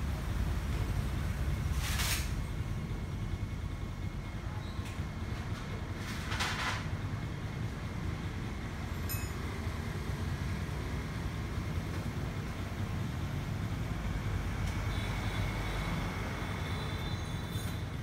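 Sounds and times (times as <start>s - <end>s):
vehicle rumbling: 0.0s - 18.0s.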